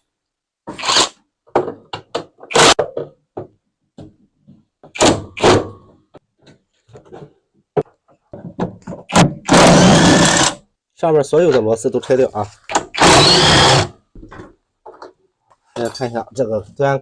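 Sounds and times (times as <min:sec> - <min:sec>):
metal tools clunking: 0:15.7 - 0:16.2.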